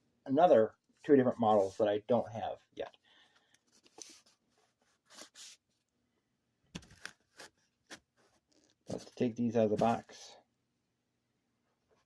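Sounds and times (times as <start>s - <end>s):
cardboard packaging rustling: 6.8s - 10.1s.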